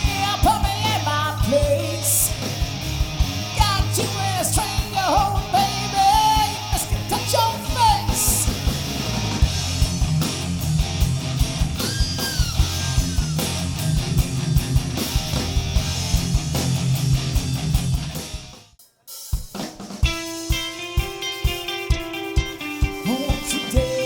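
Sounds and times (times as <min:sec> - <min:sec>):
live rock band playing: 0:00.0 - 0:18.8, 0:19.4 - 0:24.0.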